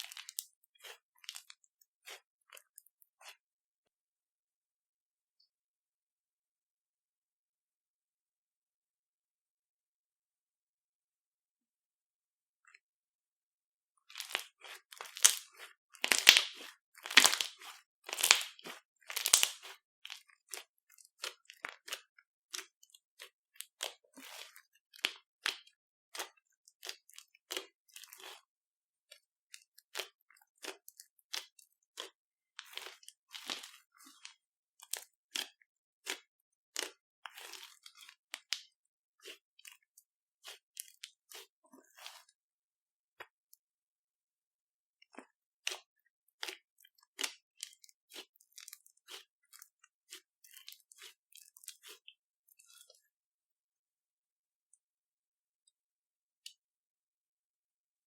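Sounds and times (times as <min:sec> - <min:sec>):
slime crackling pops: 0:16.1 - 0:18.5, 0:19.2 - 0:19.6.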